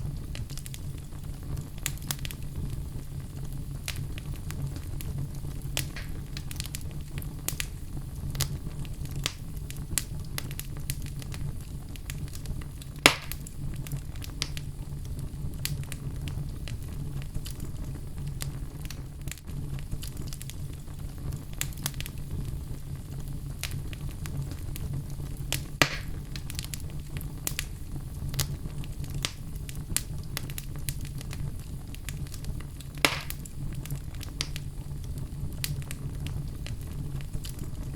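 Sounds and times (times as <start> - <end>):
fire pops: 0.0 - 37.9
wood fire crackling: 0.0 - 37.9.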